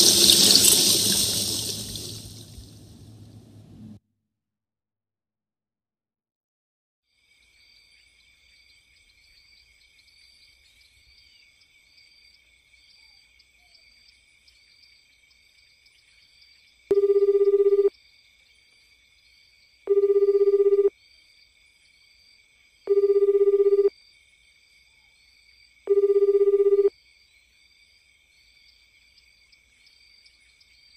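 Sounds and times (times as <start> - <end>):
faint high-pitched chirring: 15.6 - 18.0, 19.8 - 21.0, 22.7 - 24.0, 24.9 - 27.4
telephone buzzing ring: 16.9 - 17.9, 19.9 - 20.9, 22.9 - 23.9, 25.9 - 26.9.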